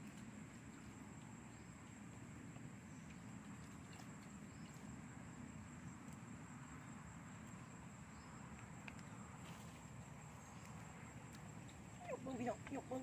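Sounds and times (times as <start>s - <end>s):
insects droning: 0.0s - 13.0s
faint ticks: 8.4s - 9.2s.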